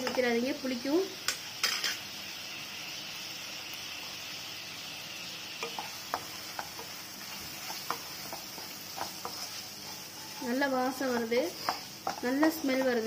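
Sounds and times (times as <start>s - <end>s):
vegetables sizzling in oil: 0.0s - 13.0s
wooden spatula tapping pan: 10.9s - 13.0s.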